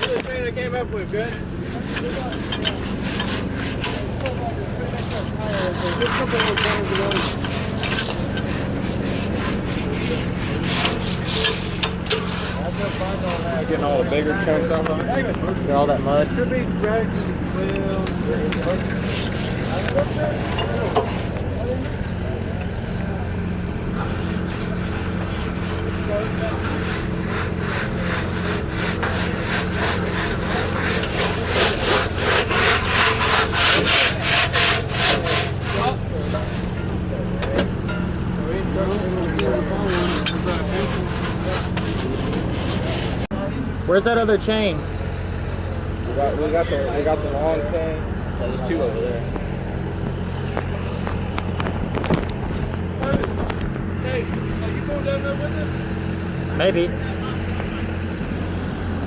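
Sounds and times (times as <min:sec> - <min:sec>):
rhythmic scraping on pipe: 0:00.0 - 0:15.3, 0:16.4 - 0:37.2, 0:37.8 - 0:43.3
engine humming: 0:00.0 - 0:59.0
scraping mud off pipe: 0:23.9 - 0:36.8, 0:39.0 - 0:43.3.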